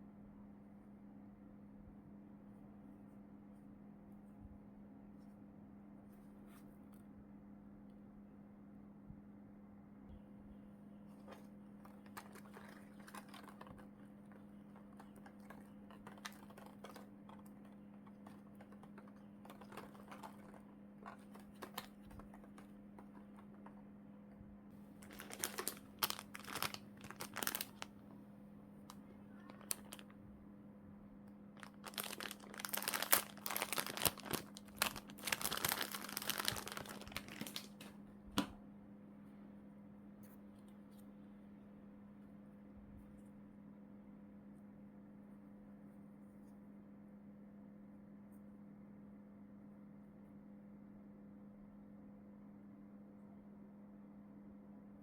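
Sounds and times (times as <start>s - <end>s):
faint low hum: 0.0s - 55.0s
plastic packaging crinkling: 11.1s - 23.8s, 24.9s - 28.2s, 28.9s - 30.2s, 31.6s - 38.0s.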